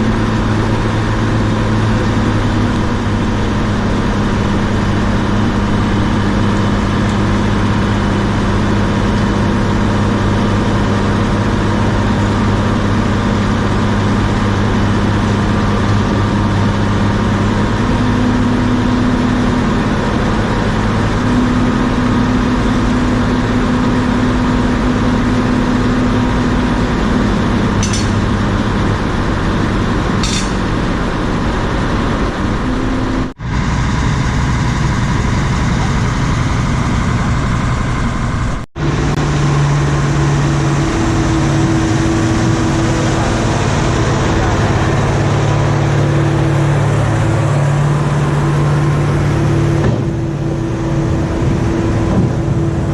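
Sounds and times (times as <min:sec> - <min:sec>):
heavy diesel engine running: 0:00.0 - 0:52.9.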